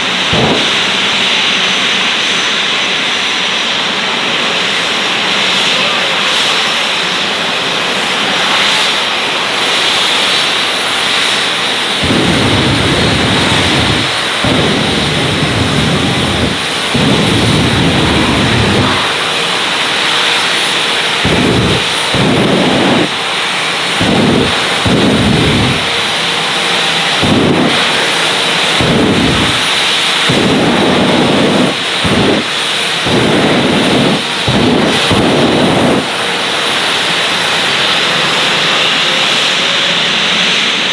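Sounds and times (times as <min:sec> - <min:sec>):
deep rumbling surges: 0:00.0 - 0:01.8, 0:10.3 - 0:39.3
jet engine roaring: 0:00.0 - 0:40.9.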